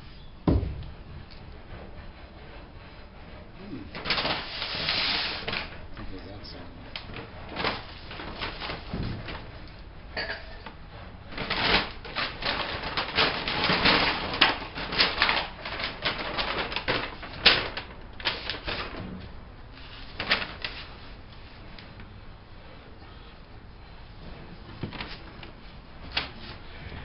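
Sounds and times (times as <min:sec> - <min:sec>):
paper crinkling and rustling: 0:03.9 - 0:09.6, 0:11.3 - 0:19.1, 0:19.8 - 0:22.1, 0:24.4 - 0:26.8.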